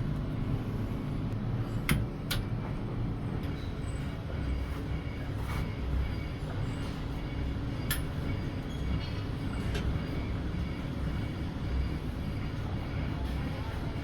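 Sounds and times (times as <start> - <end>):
workshop machinery rumbling: 0.0 - 14.0.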